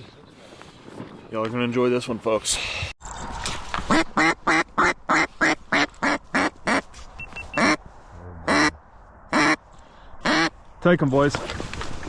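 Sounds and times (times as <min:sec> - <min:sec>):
duck call quacks: 0:03.9 - 0:06.8, 0:07.6 - 0:07.8, 0:08.5 - 0:09.6, 0:10.2 - 0:10.6.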